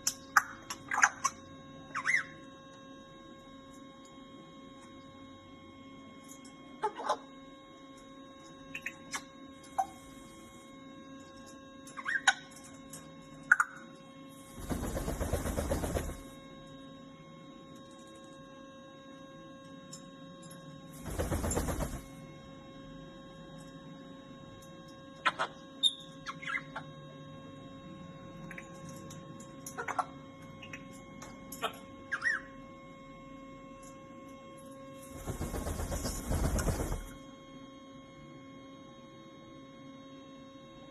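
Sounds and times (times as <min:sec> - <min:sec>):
faint steady hum: 0:00.0 - 0:40.9
parrot chirp: 0:00.4 - 0:02.4, 0:12.0 - 0:12.4, 0:25.2 - 0:26.9, 0:32.1 - 0:32.6
parrot whistle: 0:01.9 - 0:02.4, 0:32.1 - 0:32.6
parrot rattling rasping noise: 0:14.6 - 0:16.3, 0:21.0 - 0:22.1, 0:35.1 - 0:37.2.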